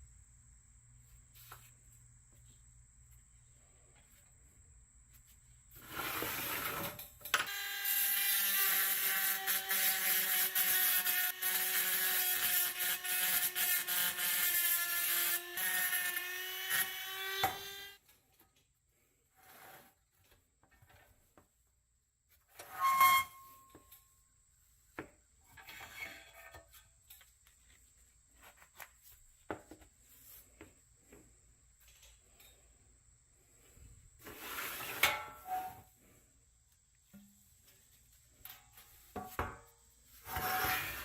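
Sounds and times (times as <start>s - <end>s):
power tool whining and grinding: 7.5s - 18.0s.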